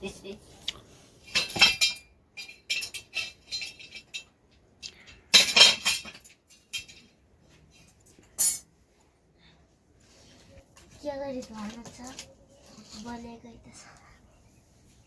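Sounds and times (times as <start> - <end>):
metal dishes clinking and scraping: 1.2 - 4.4, 5.0 - 8.7.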